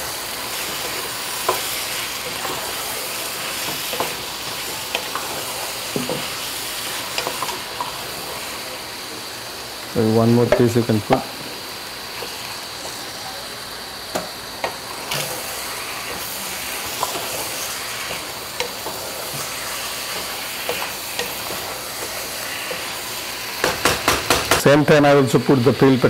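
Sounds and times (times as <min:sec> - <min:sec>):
chicken sizzling in hot oil: 0:00.0 - 0:26.0.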